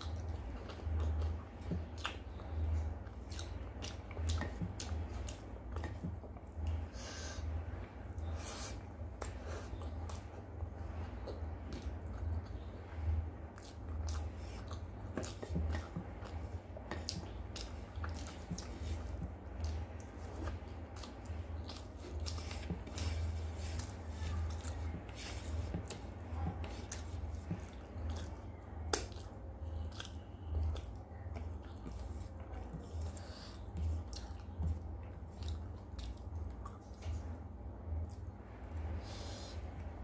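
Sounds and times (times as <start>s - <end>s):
wet chewing and lip smacks: 0.0s - 6.8s, 13.5s - 37.4s
steady low hum: 0.0s - 40.0s.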